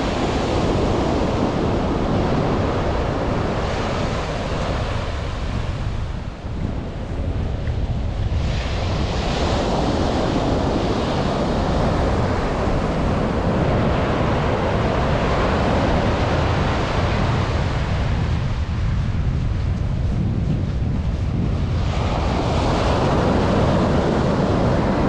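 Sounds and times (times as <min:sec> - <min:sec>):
ocean surf breaking: 0:00.0 - 0:19.1, 0:21.1 - 0:25.0
wind buffeting microphone: 0:00.0 - 0:25.0.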